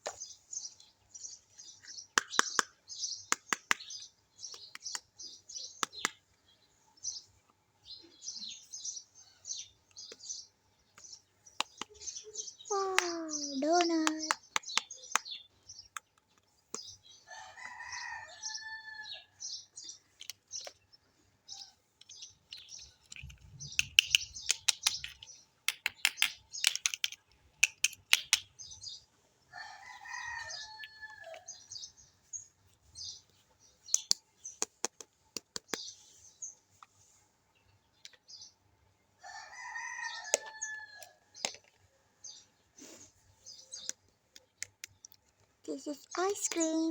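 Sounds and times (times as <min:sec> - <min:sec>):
rooster crowing: 0:17.3 - 0:19.3, 0:29.5 - 0:31.4, 0:39.2 - 0:41.2
plastic toy pieces clicking: 0:22.5 - 0:28.5.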